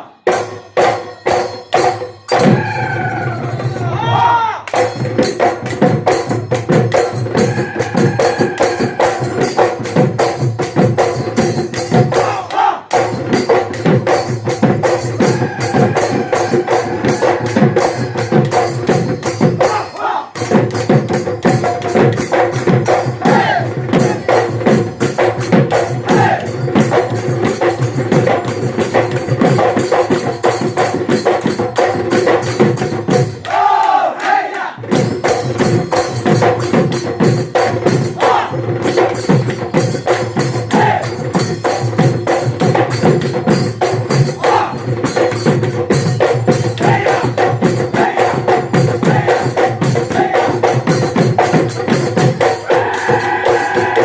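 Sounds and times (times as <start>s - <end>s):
cymbals: 0.0s - 33.5s, 34.8s - 54.0s
drums beating fast rhythm: 0.0s - 54.0s
group singing and calling out: 2.3s - 5.0s, 6.9s - 10.0s, 11.7s - 13.2s, 14.8s - 20.6s, 22.9s - 24.8s, 25.7s - 27.2s, 33.3s - 35.0s, 37.6s - 39.1s, 40.4s - 41.8s, 44.1s - 45.5s, 46.5s - 51.6s, 52.4s - 54.0s.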